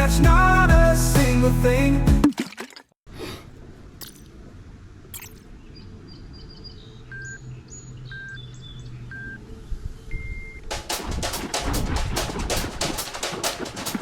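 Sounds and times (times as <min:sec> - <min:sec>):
birds chirping: 0:05.2 - 0:10.7.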